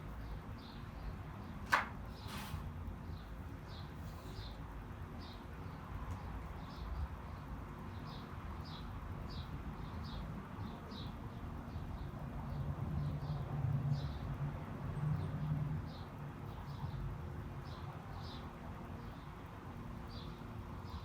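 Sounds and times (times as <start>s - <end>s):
low city rumble: 0.0s - 21.0s.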